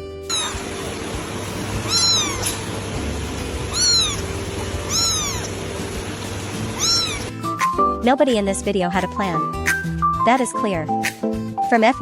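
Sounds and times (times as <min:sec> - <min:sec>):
cat meowing: 0:00.3 - 0:02.8, 0:03.4 - 0:07.3
background hiss and hum: 0:00.3 - 0:07.3.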